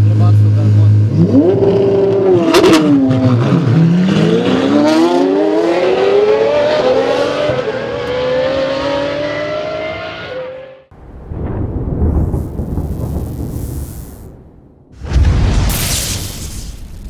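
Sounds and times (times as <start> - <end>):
car engine accelerating: 0.0 - 10.9.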